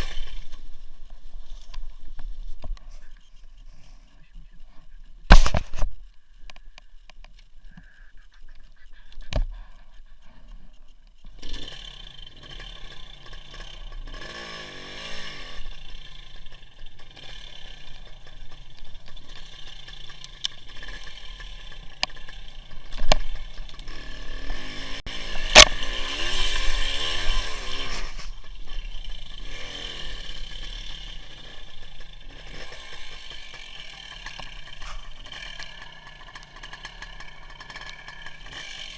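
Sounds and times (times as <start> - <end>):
motorcycle engine: 0.0 - 4.6, 10.0 - 38.9
road noise: 0.0 - 38.9.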